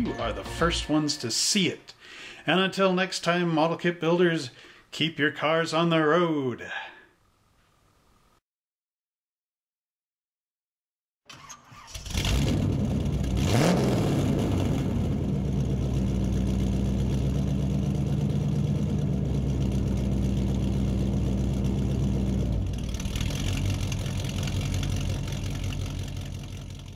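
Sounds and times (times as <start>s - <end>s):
car engine revving and idling: 12.1s - 26.9s.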